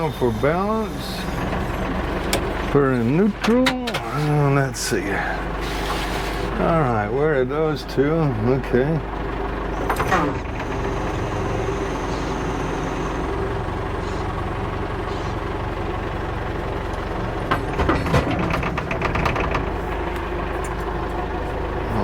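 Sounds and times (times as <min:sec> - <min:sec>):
backhoe engine running: 0:00.0 - 0:22.0
clanks and rattles: 0:01.2 - 0:04.4, 0:09.8 - 0:11.2, 0:16.6 - 0:21.7.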